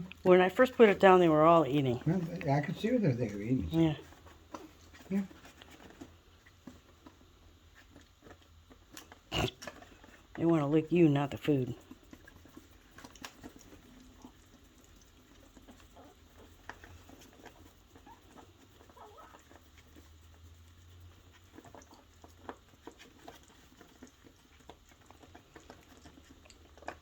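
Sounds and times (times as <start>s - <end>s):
faint clicks and pattering: 0.0s - 27.0s
puppies nibbling food: 0.0s - 27.0s.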